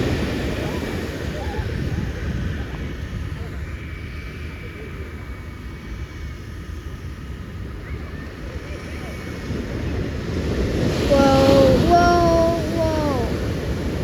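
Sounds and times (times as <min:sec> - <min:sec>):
waves breaking: 0:10.3 - 0:14.0
person calling out: 0:11.1 - 0:13.4.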